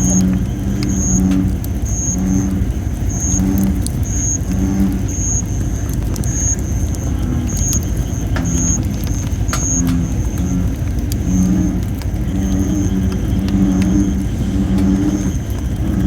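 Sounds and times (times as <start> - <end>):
bullfrog calling: 0.0 - 16.0
campfire crackling: 0.0 - 16.0.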